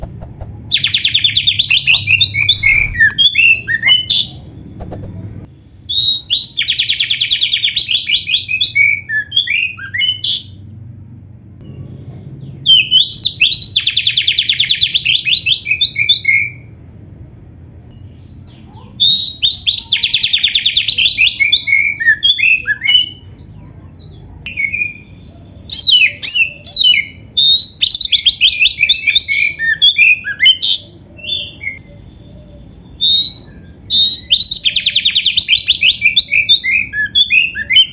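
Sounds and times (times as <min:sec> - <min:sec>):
bird singing whistled phrases: 0:00.7 - 0:05.0, 0:24.2 - 0:37.9.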